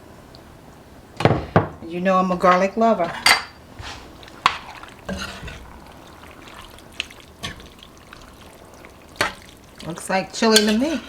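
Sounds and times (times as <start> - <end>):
wet sloppy stirring: 2.4 - 11.0
metal spoon clinking on pot: 10.4 - 11.0.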